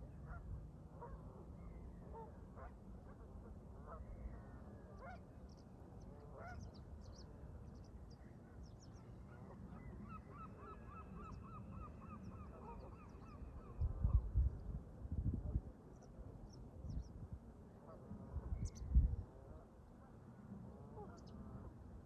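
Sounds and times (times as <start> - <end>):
low wind rumble: 13.1 - 19.5
wind gust on microphone: 13.4 - 15.7, 18.3 - 19.3.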